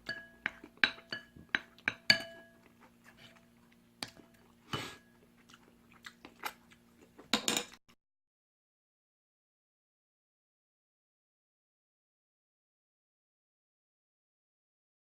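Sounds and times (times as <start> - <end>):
utensils clinking against a bowl: 0.0 - 2.7, 7.3 - 7.8
chewing noises: 2.6 - 7.3.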